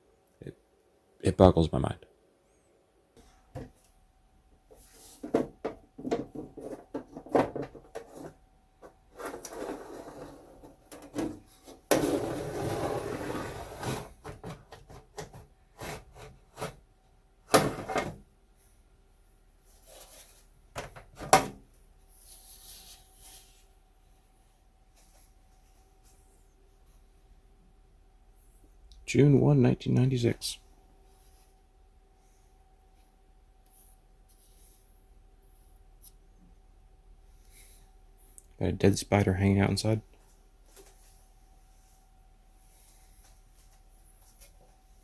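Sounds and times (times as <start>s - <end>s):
scraping or sliding: 9.2s - 10.8s, 11.7s - 14.3s.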